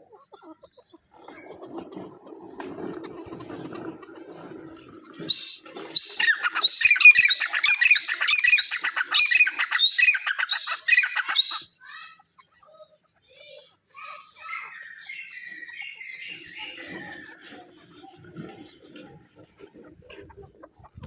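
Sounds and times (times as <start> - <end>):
francolins calling: 4.2 - 11.8, 14.4 - 19.0.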